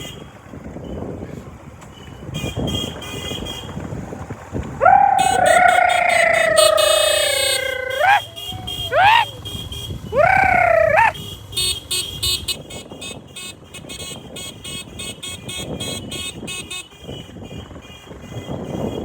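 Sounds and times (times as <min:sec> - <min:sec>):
road noise: 0:00.0 - 0:19.0
rapid high chirps: 0:05.3 - 0:09.3.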